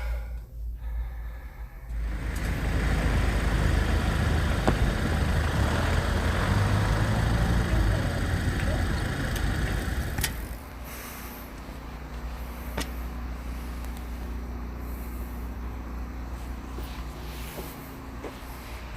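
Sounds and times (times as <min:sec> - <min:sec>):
faint steady hum: 0:00.0 - 0:18.9
road and tyre rumble: 0:01.9 - 0:18.9.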